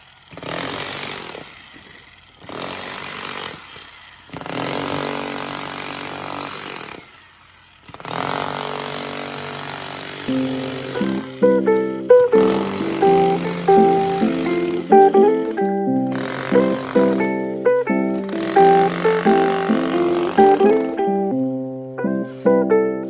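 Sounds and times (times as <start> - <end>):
handheld power tool running: 0.0 - 21.4
plucked-string music: 10.3 - 23.0.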